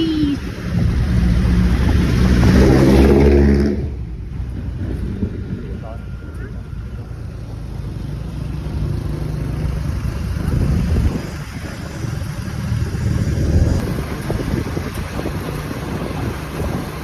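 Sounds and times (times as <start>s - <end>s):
small motorbike running: 0.0s - 17.0s
wind buffeting microphone: 0.0s - 17.0s.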